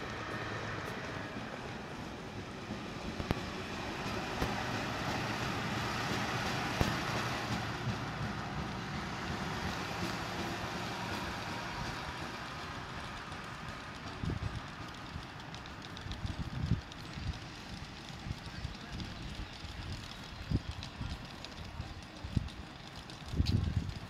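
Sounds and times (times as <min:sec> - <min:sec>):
train passing: 0:00.0 - 0:24.0.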